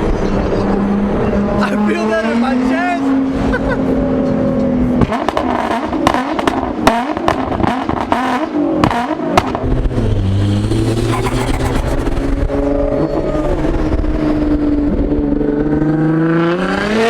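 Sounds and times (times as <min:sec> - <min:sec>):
car engine revving: 0:05.0 - 0:17.0.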